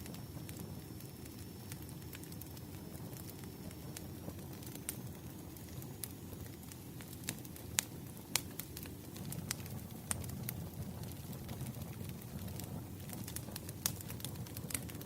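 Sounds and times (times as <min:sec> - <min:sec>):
low fire rumble: 0:00.0 - 0:15.0
wood fire crackling and popping: 0:00.0 - 0:15.0.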